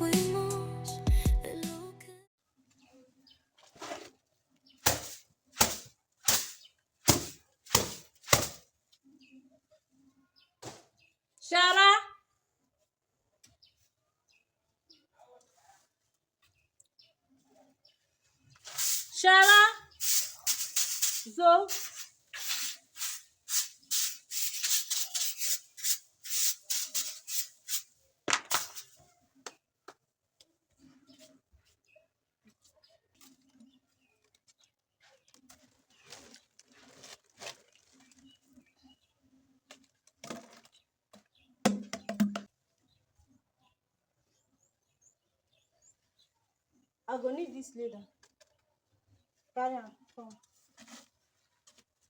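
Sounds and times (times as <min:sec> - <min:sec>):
rubbing strokes: 0:18.7 - 0:27.9.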